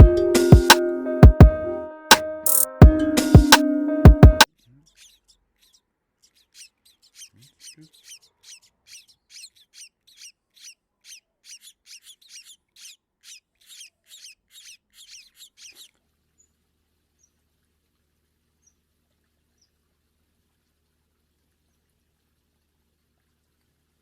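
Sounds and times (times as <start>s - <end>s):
finch chirping: 4.9s - 15.9s.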